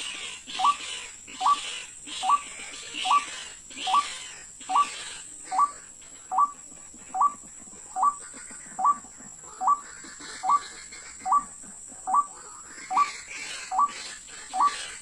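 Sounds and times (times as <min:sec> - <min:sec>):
waterhen calling: 0:00.0 - 0:15.0.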